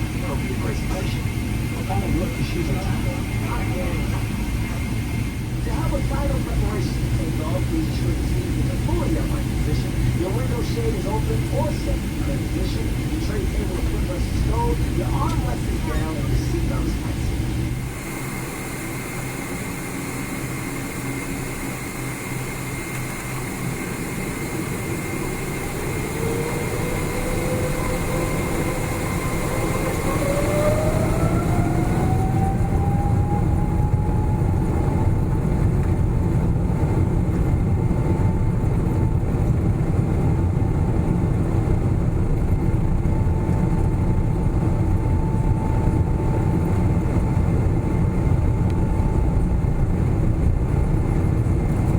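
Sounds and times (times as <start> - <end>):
jet engine whine rising: 0.0 - 51.9
low engine rumble: 0.0 - 51.9.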